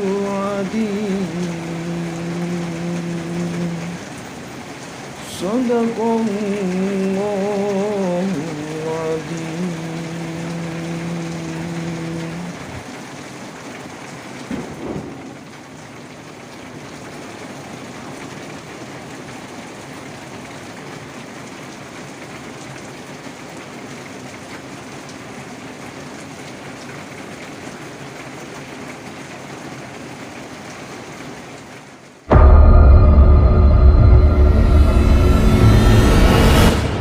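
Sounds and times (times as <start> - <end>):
steady rain falling: 0.0 - 37.0
brief loud sound: 32.3 - 37.0
loud music: 32.3 - 37.0.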